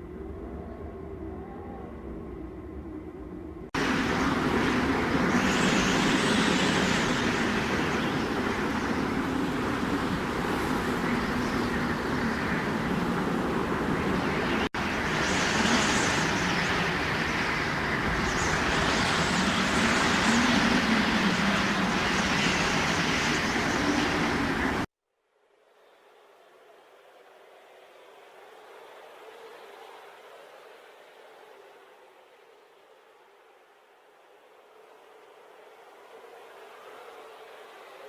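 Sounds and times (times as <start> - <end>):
blizzard wind blowing in gusts: 0.0 - 24.9
faint low whistling of wind: 0.0 - 24.9.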